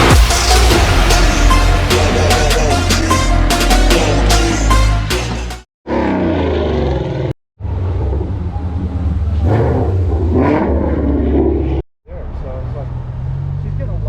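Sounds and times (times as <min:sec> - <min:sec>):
car engine rumbling and revving: 0:07.6 - 0:14.0.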